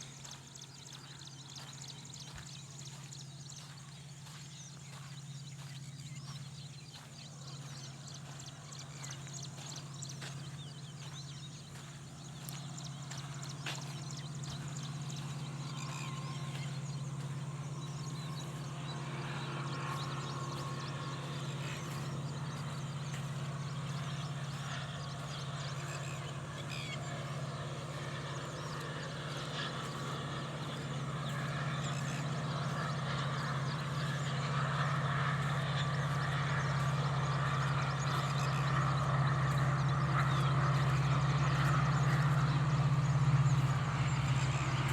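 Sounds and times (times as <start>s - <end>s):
birds calling: 0.0s - 44.9s
steady low hum: 0.0s - 44.9s.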